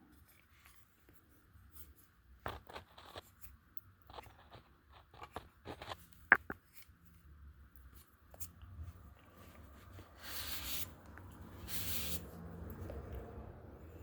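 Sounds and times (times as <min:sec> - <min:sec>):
hissing rub: 0:09.9 - 0:12.5.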